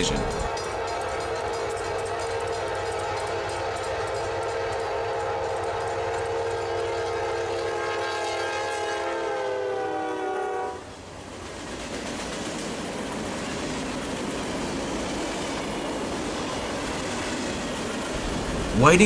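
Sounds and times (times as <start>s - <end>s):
train wheels rumbling on rails: 0.0s - 7.6s, 10.8s - 19.0s
locomotive air horn: 2.1s - 10.8s.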